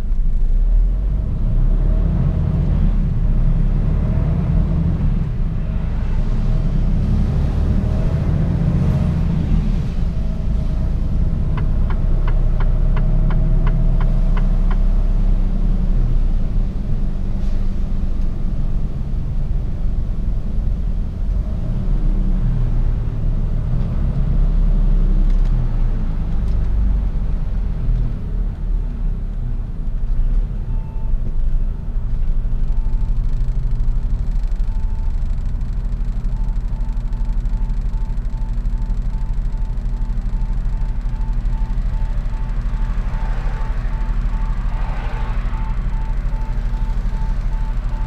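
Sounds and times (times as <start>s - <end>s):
truck diesel engine rumble: 0.0s - 48.0s
short mid-pitched beep: 30.7s - 31.7s, 36.2s - 48.0s.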